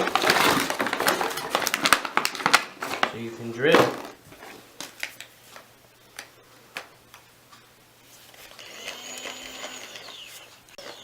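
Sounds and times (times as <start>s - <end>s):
toy drill motor whirring: 8.5s - 11.0s.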